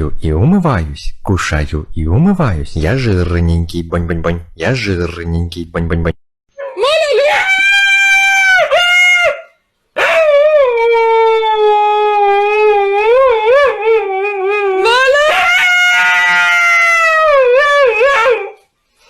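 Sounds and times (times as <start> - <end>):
dog howling: 6.6 - 18.6.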